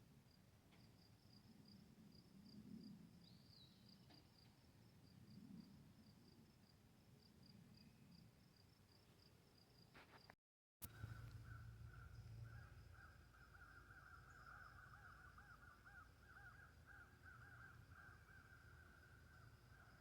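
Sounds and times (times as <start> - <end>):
high thin insect hum: 0.2 - 20.0
faint animal calls: 10.9 - 20.0.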